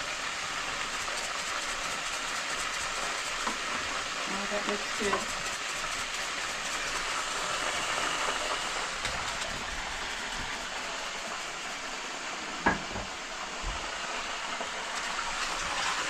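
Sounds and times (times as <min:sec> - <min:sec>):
fish sizzling in hot oil: 0:00.0 - 0:16.0
knock: 0:12.6 - 0:13.1.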